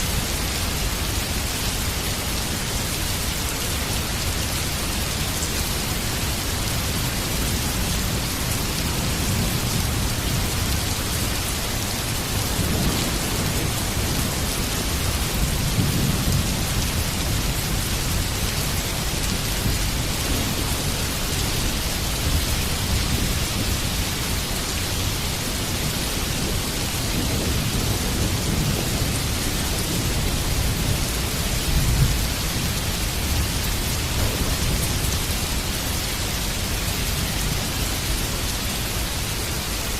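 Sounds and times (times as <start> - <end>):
heavy rain falling: 0.0 - 39.9
low rolls of thunder: 7.4 - 24.3, 25.6 - 35.9.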